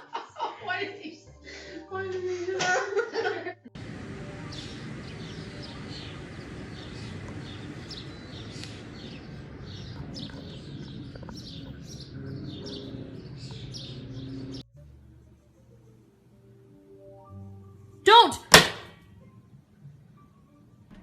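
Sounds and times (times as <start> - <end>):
birds chirping: 3.8 - 14.7.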